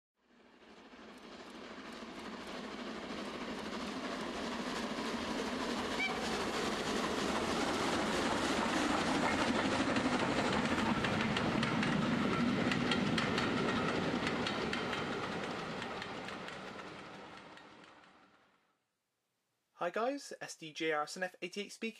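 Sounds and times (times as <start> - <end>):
train wheels clicking over rail joints: 1.2 - 18.4.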